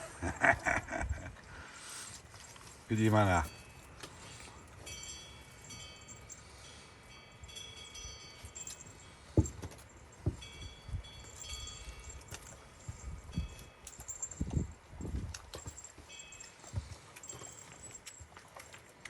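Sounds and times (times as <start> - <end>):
small collar bells jingling: 1.9 - 19.0.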